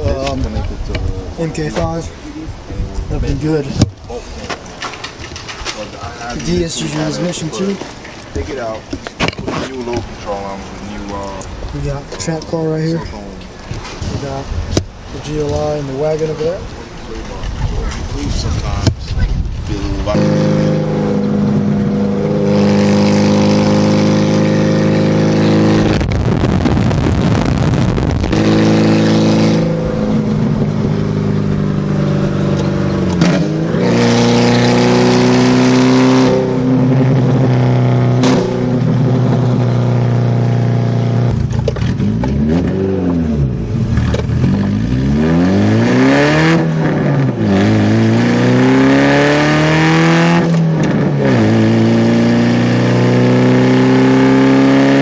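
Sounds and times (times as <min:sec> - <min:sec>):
car engine revving: 0:17.9 - 0:55.0.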